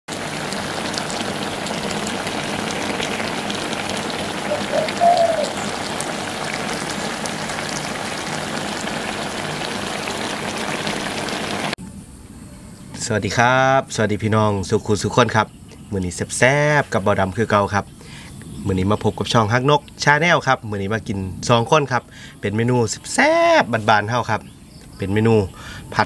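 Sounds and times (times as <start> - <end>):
food sizzling in a pan: 0.1 - 11.8.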